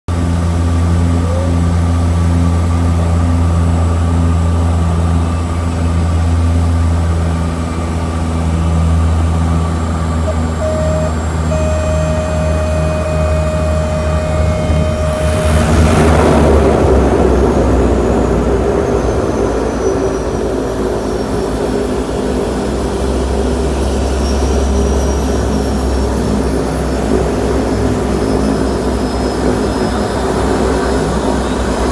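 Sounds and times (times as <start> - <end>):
propeller engines droning: 0.1 - 31.9
water rushing: 11.6 - 18.7.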